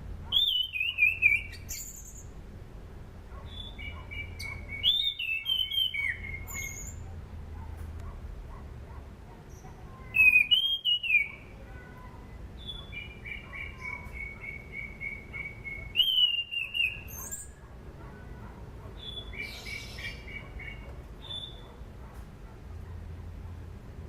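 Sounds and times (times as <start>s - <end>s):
thrush singing whistled phrases: 0.4s - 2.3s, 3.6s - 7.0s, 10.1s - 11.4s, 12.6s - 17.5s.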